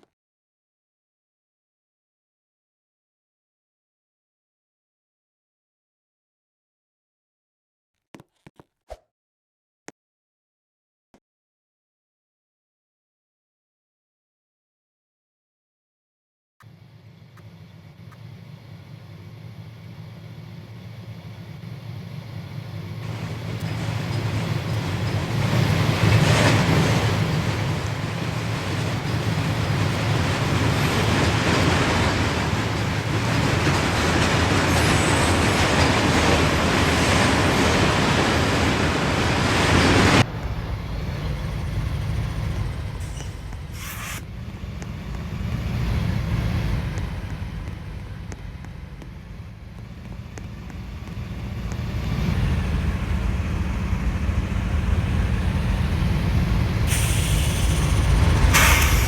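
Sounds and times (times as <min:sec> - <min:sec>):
loud vehicle noise: 0:16.6 - 0:59.0
steady low rumble: 0:36.1 - 0:59.0.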